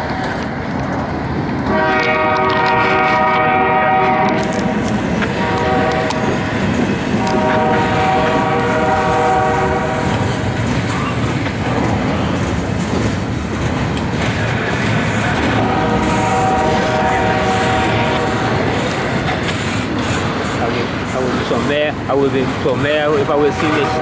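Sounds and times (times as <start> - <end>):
freight train rumble and clatter: 0.0 - 24.0
locomotive horn blasts: 1.7 - 10.5, 15.3 - 19.4, 23.2 - 24.0.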